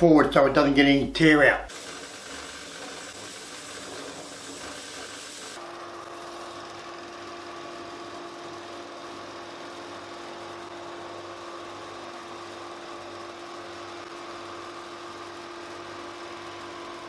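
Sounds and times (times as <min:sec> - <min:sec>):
wood router cutting: 0:01.7 - 0:05.6.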